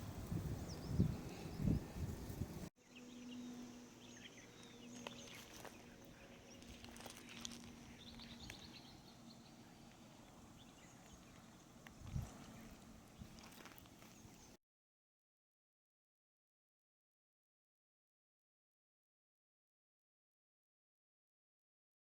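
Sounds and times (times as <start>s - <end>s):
small birds chirping: 0.0s - 14.6s.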